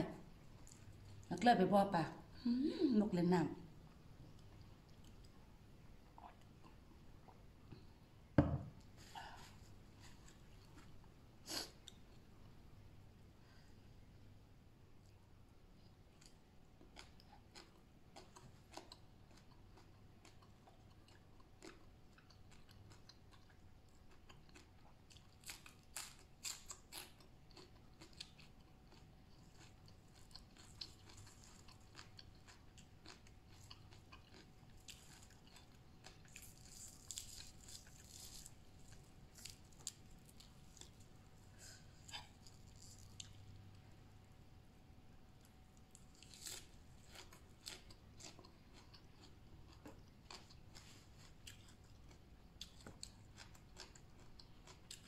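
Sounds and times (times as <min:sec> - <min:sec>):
person crunching raw cabbage: 0:16.2 - 0:43.9, 0:45.8 - 0:55.0.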